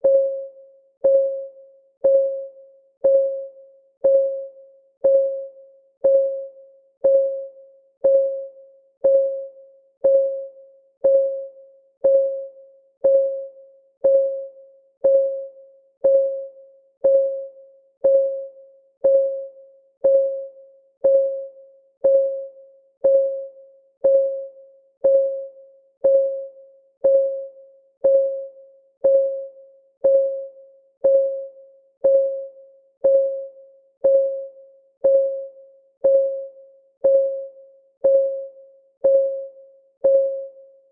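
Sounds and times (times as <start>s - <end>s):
clock ticking tones: 0.0s - 40.6s.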